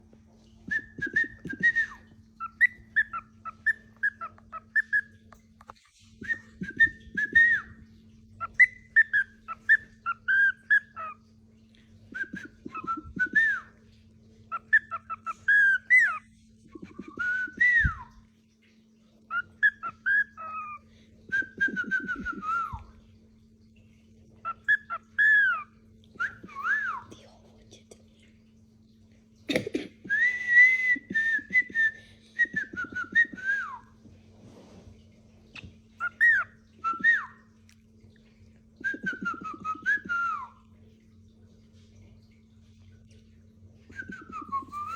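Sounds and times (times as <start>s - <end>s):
faint low hum: 0.0s - 44.9s
parrot whistling: 0.7s - 5.2s, 6.2s - 7.8s, 8.4s - 11.2s, 12.2s - 13.7s, 16.8s - 18.1s, 19.3s - 22.9s, 24.4s - 27.1s, 30.1s - 33.9s, 35.6s - 37.4s, 38.8s - 40.6s, 43.9s - 44.9s.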